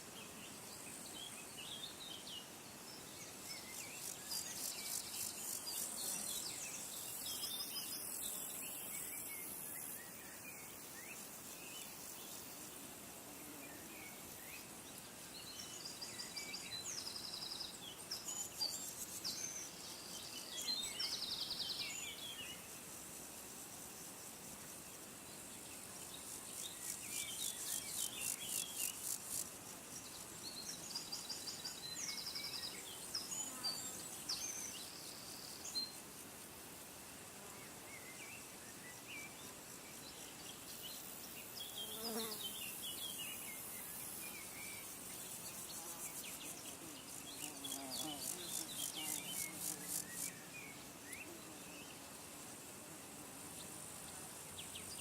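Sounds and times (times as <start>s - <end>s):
small birds chirping: 37.7s - 52.1s
high pulsing insect trill: 39.6s - 52.7s.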